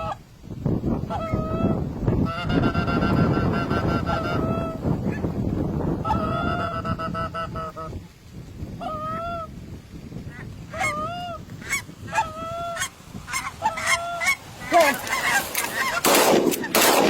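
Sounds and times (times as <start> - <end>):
geese honking: 0.0 - 0.2, 1.1 - 5.2, 6.0 - 7.9, 8.8 - 9.5, 10.3 - 17.0
shotgun shots: 16.0 - 17.0.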